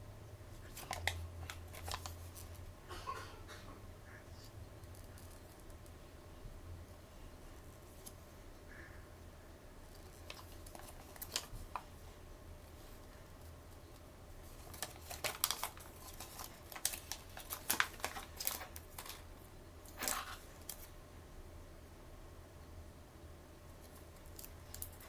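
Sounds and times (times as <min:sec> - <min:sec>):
toy packaging crackling: 0:00.6 - 0:02.6, 0:09.9 - 0:11.9, 0:14.4 - 0:20.9, 0:24.2 - 0:25.0
packaging rustling: 0:00.6 - 0:02.7, 0:09.9 - 0:12.0, 0:12.8 - 0:20.9, 0:23.8 - 0:25.0.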